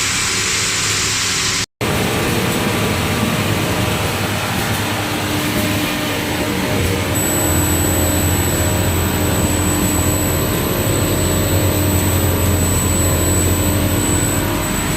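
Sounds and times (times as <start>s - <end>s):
belt sanding machine grinding: 7.2s - 14.9s.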